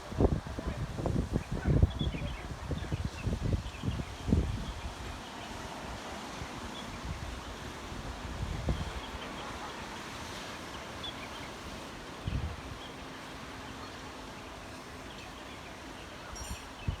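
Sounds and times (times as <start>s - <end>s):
wind buffeting microphone: 0.0s - 9.4s, 12.1s - 12.9s
sea washing: 0.0s - 17.0s.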